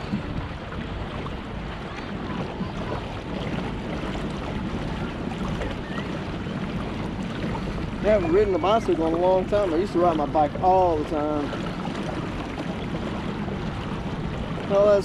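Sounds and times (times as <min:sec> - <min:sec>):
water splashing around kayak: 0:00.0 - 0:15.0
wind noise on microphone: 0:00.0 - 0:15.0.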